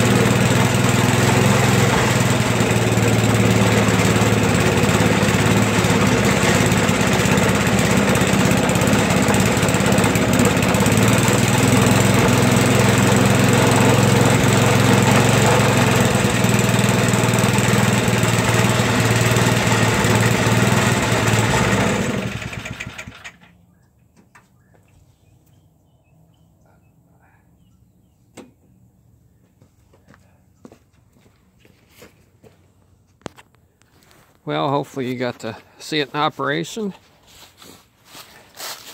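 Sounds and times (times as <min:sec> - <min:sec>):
snowblower engine running: 0:00.0 - 0:23.5.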